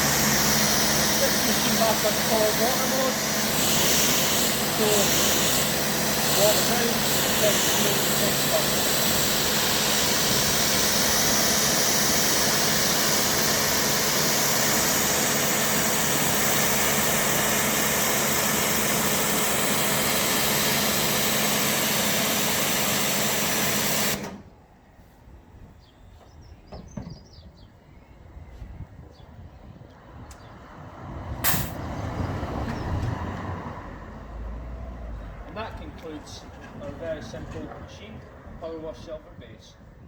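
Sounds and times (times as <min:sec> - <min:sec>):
water spraying from lance: 0:00.0 - 0:16.2
pressure washer motor humming: 0:00.0 - 0:24.5.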